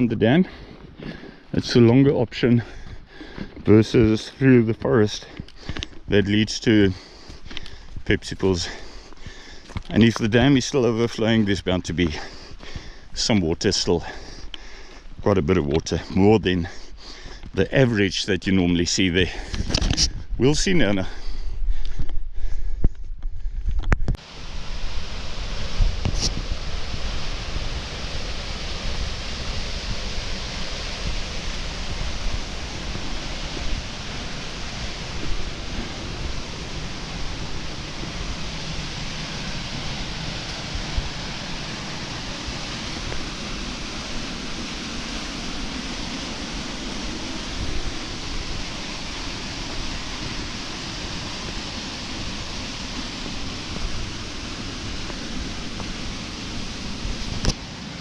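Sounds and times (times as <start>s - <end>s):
wind buffeting microphone: 19.4s - 57.6s
fast-flowing river water: 24.2s - 58.0s.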